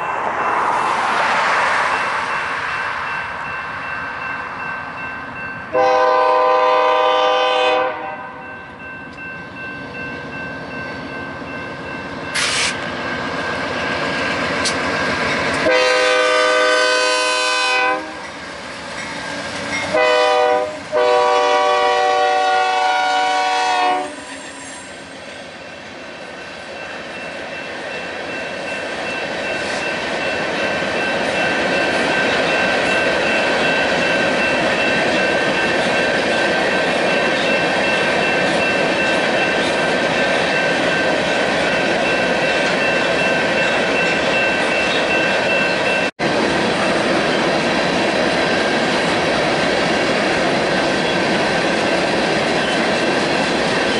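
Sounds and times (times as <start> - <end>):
freight cars rumbling past: 0.0 - 5.6
locomotive air horn chord: 5.7 - 8.4, 15.6 - 18.2, 19.9 - 24.4.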